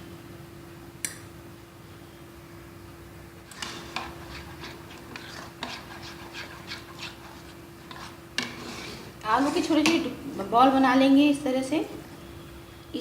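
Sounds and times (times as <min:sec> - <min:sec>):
spoon stirring batter in bowl: 0:03.5 - 0:10.1.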